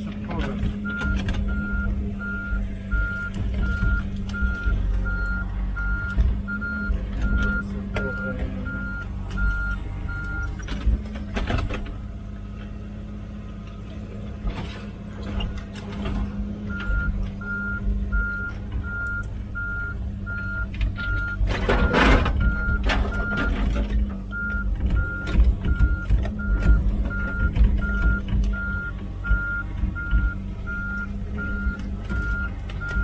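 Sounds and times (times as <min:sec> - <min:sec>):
excavator diesel engine running: 0:00.0 - 0:33.0
travel alarm beeping: 0:00.8 - 0:10.6, 0:16.7 - 0:23.7, 0:24.3 - 0:33.0.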